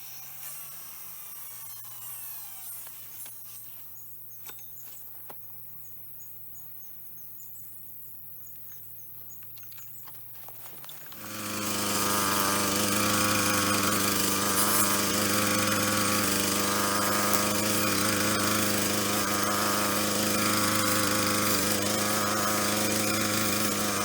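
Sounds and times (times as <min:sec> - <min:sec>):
brush cutter engine running: 0:10.7 - 0:24.0.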